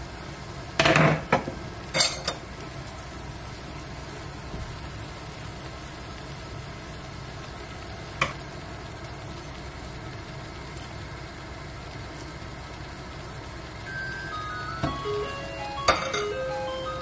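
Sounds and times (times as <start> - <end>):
electronic chime melody: 13.8 - 17.0.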